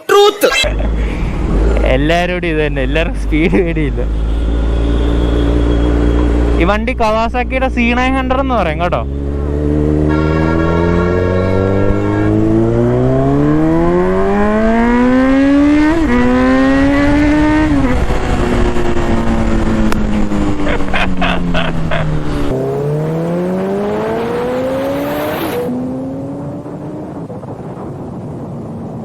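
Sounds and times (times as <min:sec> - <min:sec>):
motorcycle engine accelerating: 0:00.7 - 0:29.0
wind rushing: 0:11.5 - 0:29.0.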